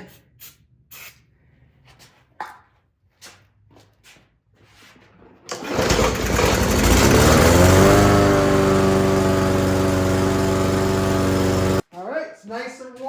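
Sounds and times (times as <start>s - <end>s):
lawn mower engine starting and running: 5.5s - 11.8s.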